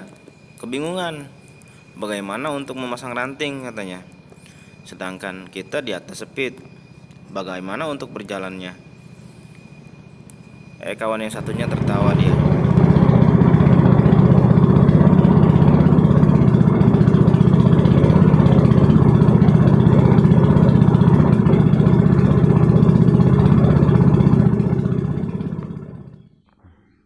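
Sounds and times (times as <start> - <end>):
outboard motor running: 11.3 - 26.3.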